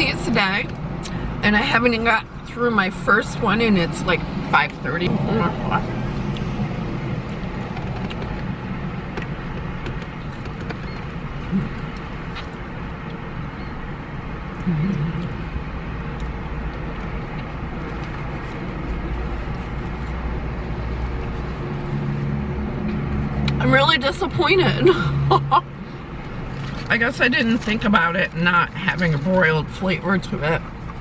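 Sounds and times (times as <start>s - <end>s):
steady low rumble: 0.0s - 31.0s
person eating: 14.5s - 19.0s.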